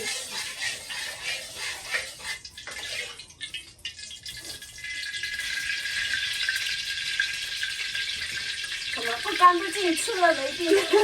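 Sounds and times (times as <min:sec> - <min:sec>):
water running at a sink: 0:00.0 - 0:11.0.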